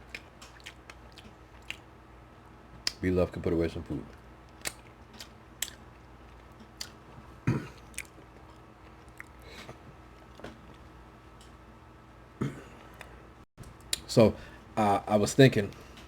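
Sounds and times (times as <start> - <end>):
person chewing food: 0.0 - 1.9, 4.1 - 10.9.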